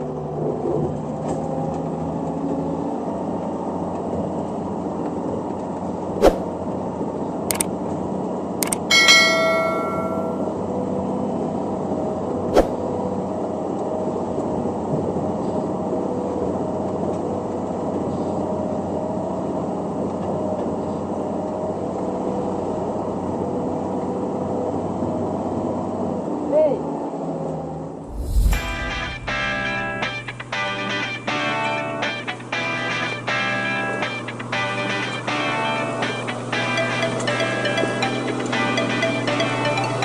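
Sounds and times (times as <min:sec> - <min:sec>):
sharp clicks: 0:08.6 - 0:08.9
ringing metallic clang: 0:08.9 - 0:10.5.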